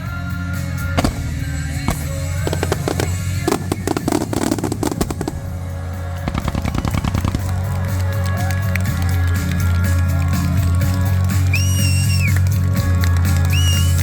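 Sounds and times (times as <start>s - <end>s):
fireworks crackling: 0.6s - 12.6s
steady music: 0.9s - 10.8s.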